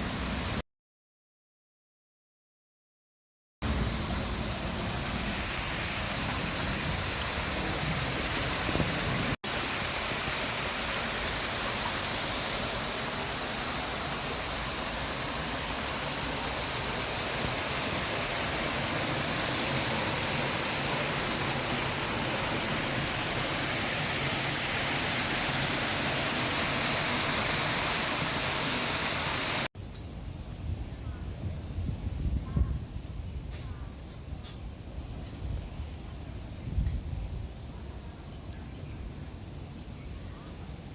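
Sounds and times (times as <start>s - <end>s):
falling water rushing: 0.0s - 0.6s, 3.6s - 29.7s.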